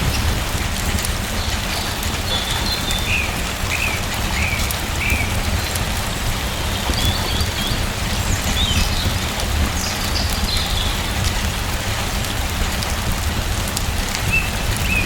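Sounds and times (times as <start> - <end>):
steady rain falling: 0.0 - 15.0
bird chirping: 1.4 - 5.8.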